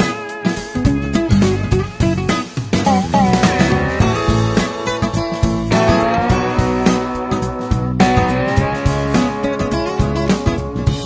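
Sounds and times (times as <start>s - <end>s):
country song with guitar: 0.0s - 11.0s.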